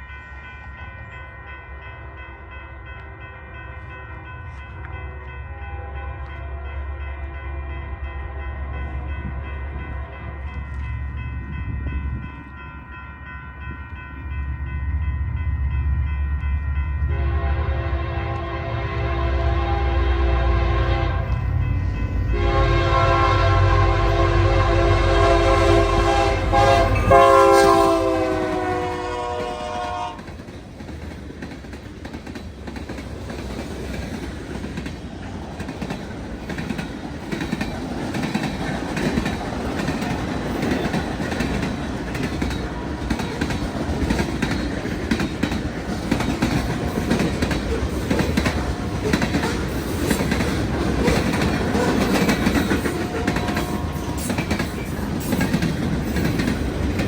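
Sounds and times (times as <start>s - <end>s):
locomotive air horn: 17.2s - 21.5s, 22.3s - 30.3s, 52.9s - 54.4s
train wheels clacking over rail joints: 26.1s - 57.0s.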